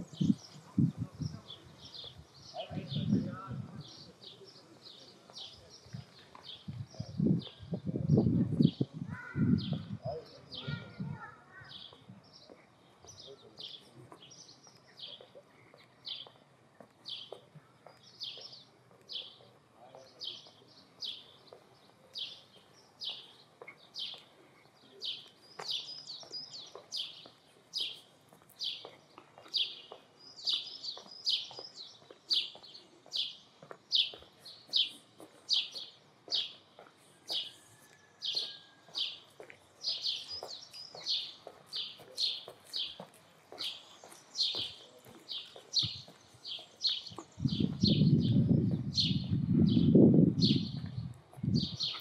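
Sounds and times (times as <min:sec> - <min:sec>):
bird chirping: 0:17.0 - 0:37.6, 0:38.3 - 0:52.0.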